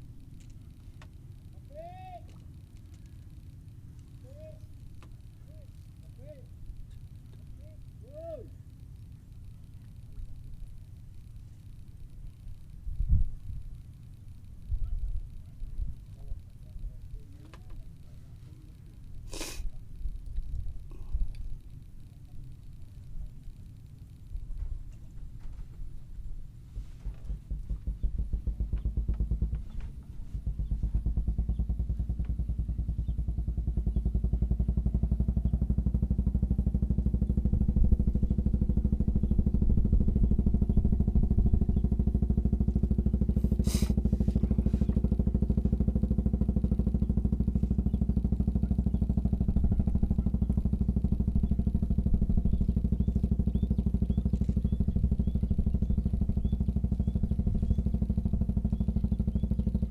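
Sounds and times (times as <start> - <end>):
small engine running: 0.0 - 59.9
short hissing burst: 19.2 - 19.7, 43.5 - 44.0.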